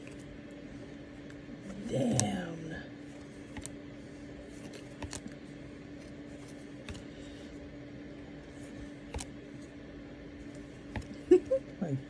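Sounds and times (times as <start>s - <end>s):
steady hum: 0.0s - 12.0s
cards being shuffled clicks: 3.2s - 3.8s, 4.4s - 5.4s, 6.0s - 7.3s, 8.5s - 9.4s.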